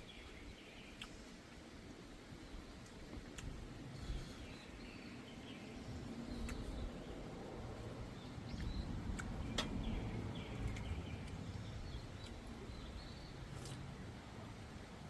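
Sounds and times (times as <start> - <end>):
small birds chirping: 0.0 - 14.9
low outdoor rumble: 0.0 - 15.0
faint clicks: 8.5 - 9.8.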